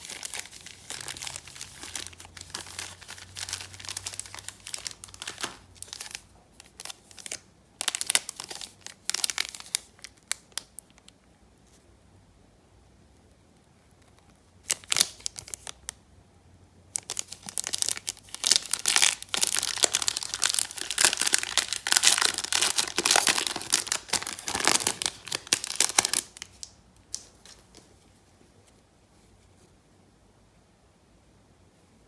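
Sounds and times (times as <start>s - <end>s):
plastic wrapping crinkling: 0.0s - 11.1s, 14.6s - 16.0s, 17.0s - 28.1s.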